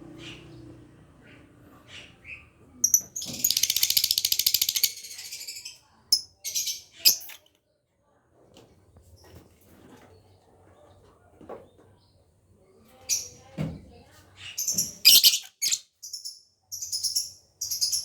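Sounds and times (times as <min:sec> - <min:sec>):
lovebird chirping and trilling: 0:01.9 - 0:07.4, 0:14.6 - 0:18.0.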